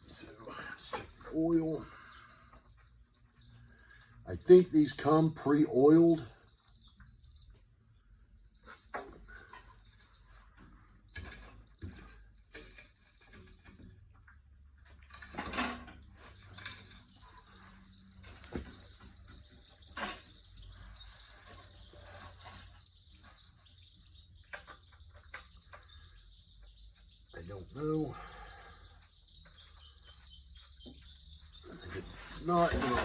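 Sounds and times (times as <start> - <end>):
high chirping: 16.2 - 33.0.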